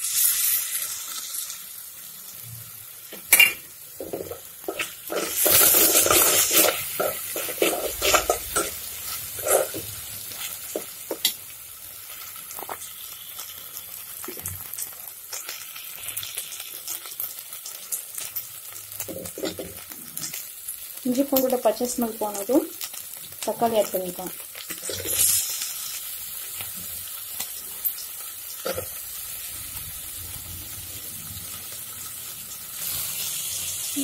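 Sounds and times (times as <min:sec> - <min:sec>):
onions sizzling in oil: 0:00.0 - 0:34.0
spoon scraping metal pot: 0:03.3 - 0:11.2.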